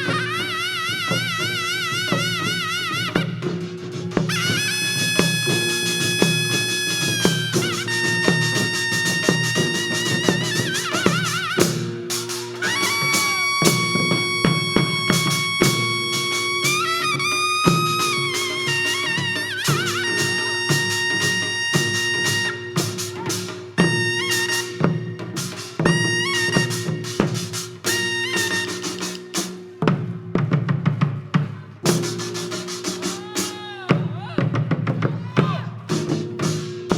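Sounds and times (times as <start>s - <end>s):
wind instrument long high notes: 0.0s - 3.6s, 4.2s - 29.6s
drum strokes: 0.0s - 36.9s.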